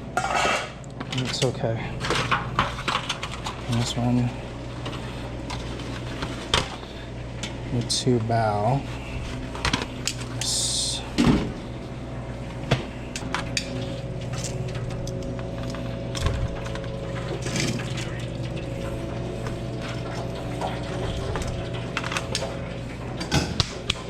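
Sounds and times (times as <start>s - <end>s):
kitchen equipment humming: 0.0s - 24.0s
containers and utensils clattering: 16.4s - 22.6s.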